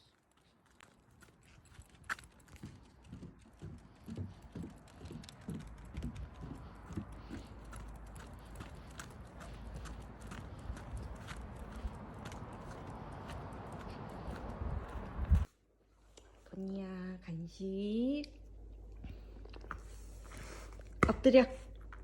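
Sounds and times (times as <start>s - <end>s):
footsteps on hard surface: 0.8s - 15.5s.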